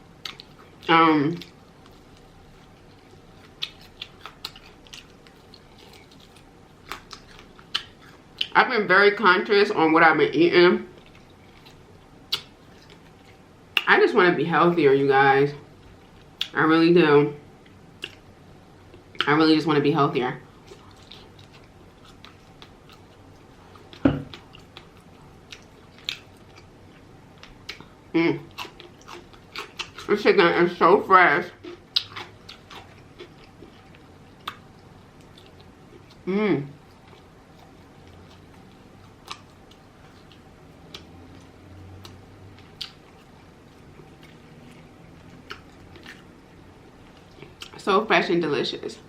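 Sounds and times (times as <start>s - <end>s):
close-up chewing: 0.0s - 8.6s, 10.9s - 13.9s, 17.6s - 19.3s, 20.4s - 30.2s, 31.4s - 47.8s
faint low hum: 0.0s - 49.0s
wet chewing mouth clicks: 18.0s - 18.2s, 31.6s - 33.8s, 37.1s - 46.3s.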